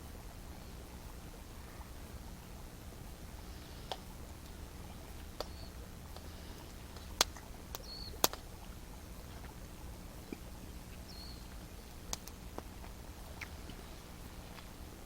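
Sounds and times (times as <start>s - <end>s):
campfire crackling: 0.0s - 15.0s
fire pops: 3.8s - 8.6s, 11.9s - 13.9s
small bird chirping: 4.8s - 5.8s, 7.8s - 8.3s, 10.9s - 11.6s.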